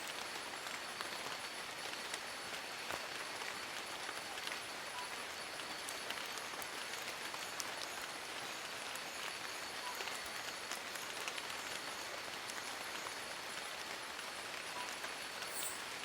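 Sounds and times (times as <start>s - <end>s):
rain on leaves: 0.0s - 16.0s
faint high-pitched tone: 14.8s - 15.8s.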